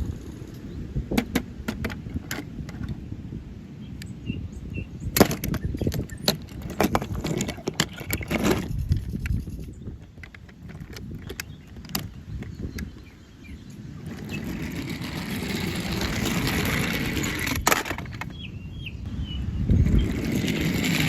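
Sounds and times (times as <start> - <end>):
plastic clicks and knocks: 1.1 - 3.0
toy vehicles rolling on hard surface: 5.2 - 12.9, 13.8 - 18.4, 19.8 - 21.0.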